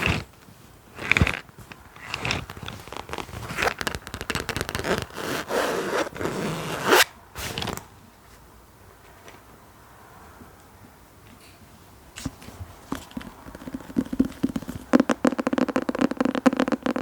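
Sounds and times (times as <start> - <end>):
crackly scratching scrapes: 0.0 - 7.9, 12.4 - 17.0.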